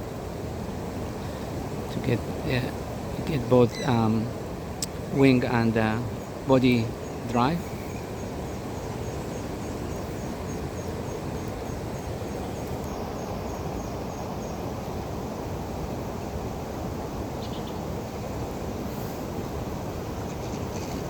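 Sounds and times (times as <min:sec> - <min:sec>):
river rushing: 0:00.0 - 0:21.0
high chirp: 0:03.7 - 0:04.2.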